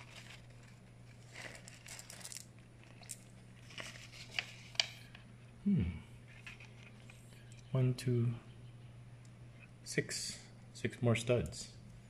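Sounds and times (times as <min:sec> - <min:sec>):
plastic bag crinkling: 0:00.0 - 0:04.8.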